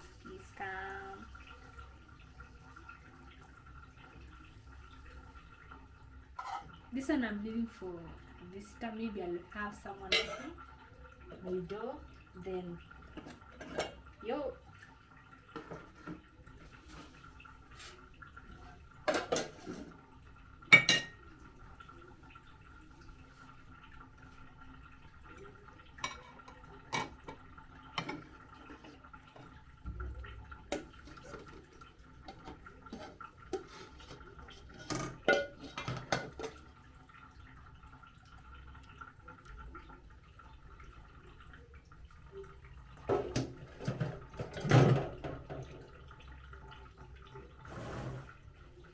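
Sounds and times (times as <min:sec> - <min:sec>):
plates and pots clinking: 0:06.4 - 0:06.8, 0:13.2 - 0:14.0, 0:19.0 - 0:20.0, 0:20.7 - 0:21.3, 0:26.0 - 0:27.4, 0:32.3 - 0:36.6, 0:43.1 - 0:45.7.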